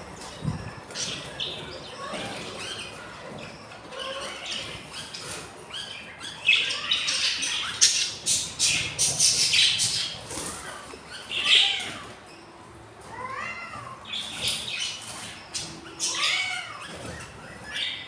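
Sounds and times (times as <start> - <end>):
budgies squawking and chirping: 0.2 - 12.2, 14.0 - 18.0.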